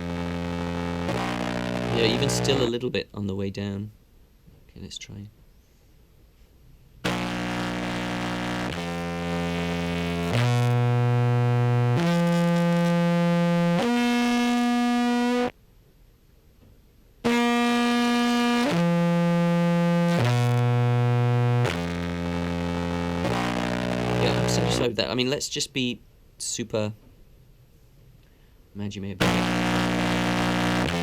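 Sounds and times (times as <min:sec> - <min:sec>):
distorted contrabass clarinet notes: 0:00.0 - 0:02.8, 0:07.1 - 0:15.5, 0:17.3 - 0:24.9, 0:29.2 - 0:31.0.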